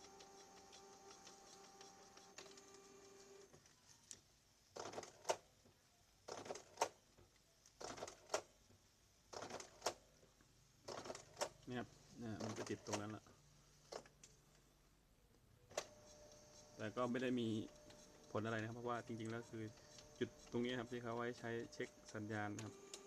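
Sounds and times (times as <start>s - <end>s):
printer motor whir: 0.0s - 3.6s, 15.7s - 23.0s.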